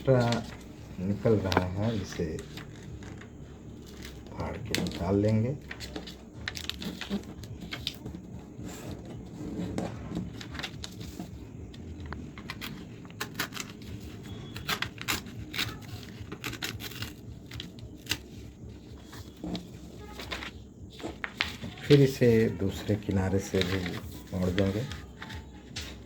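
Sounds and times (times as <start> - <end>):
paper crackling and rubbing: 0.0 - 26.0
paper tearing: 12.6 - 18.3.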